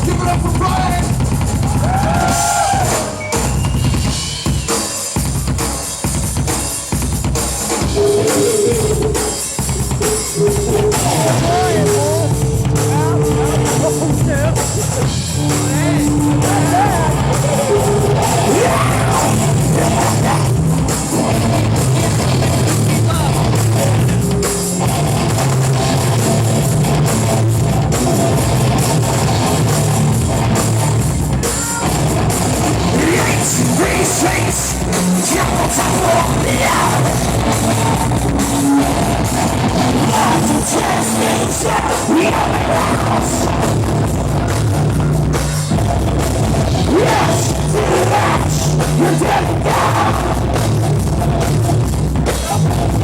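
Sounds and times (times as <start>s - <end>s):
distorted guitars: 0.0s - 53.0s
drums: 0.0s - 53.0s
rock band playing: 0.0s - 53.0s
person shouting vocals: 10.6s - 20.5s.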